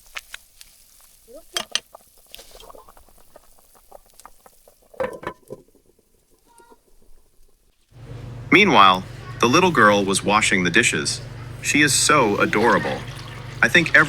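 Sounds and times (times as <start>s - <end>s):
utensil knocking cooking pot: 11.3s - 14.0s.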